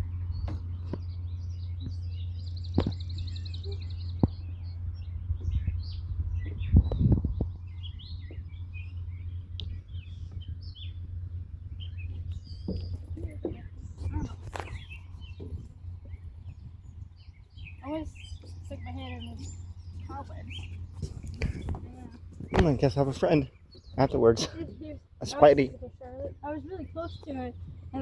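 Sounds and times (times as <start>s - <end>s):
birds chirping and calling: 0.0s - 28.0s
steady low hum: 0.0s - 28.0s
knocks and thumps: 12.6s - 16.2s.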